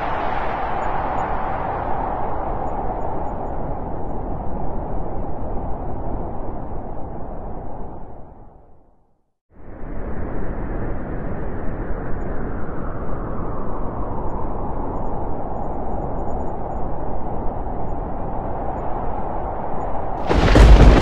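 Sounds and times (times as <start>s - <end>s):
deep thunder rumble: 20.2s - 21.0s.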